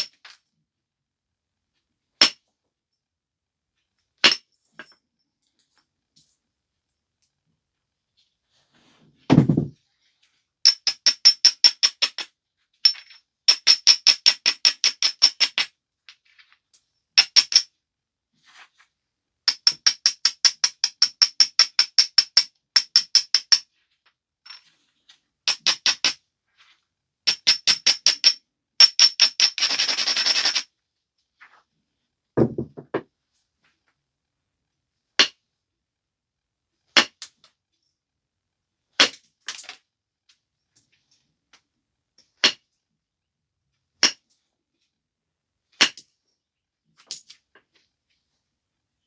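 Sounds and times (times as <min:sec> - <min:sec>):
dull knock: 0:09.3 - 0:09.7, 0:32.4 - 0:33.1.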